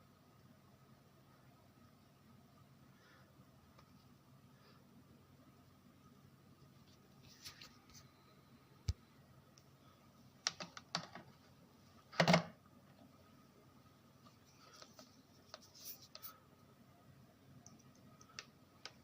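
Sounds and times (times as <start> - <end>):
small clicks and taps: 10.4 - 11.3, 17.6 - 19.0.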